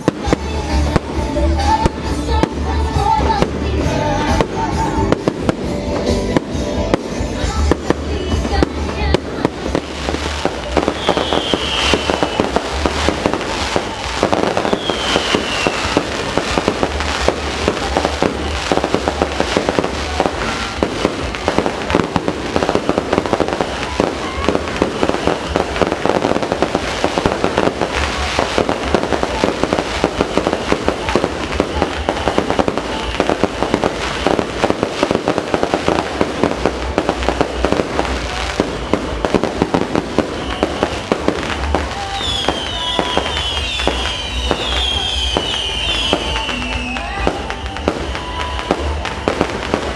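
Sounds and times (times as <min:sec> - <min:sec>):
fireworks crackling and banging: 0:00.0 - 0:49.9
falling firework whistles: 0:09.7 - 0:49.9.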